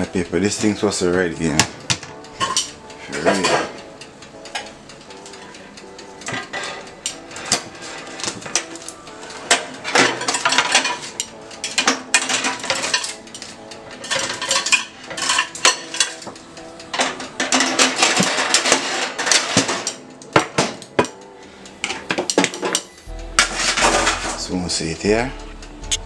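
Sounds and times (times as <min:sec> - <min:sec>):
metal utensils clattering on dishes: 0:00.6 - 0:03.8, 0:06.3 - 0:23.0.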